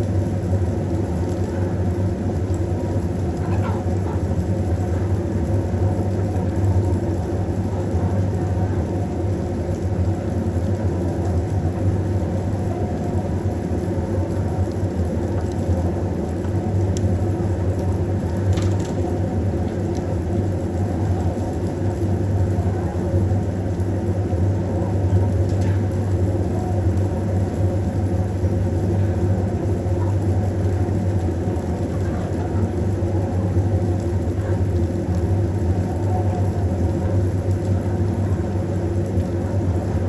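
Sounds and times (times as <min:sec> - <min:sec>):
faint clicks: 0:25.2 - 0:26.1.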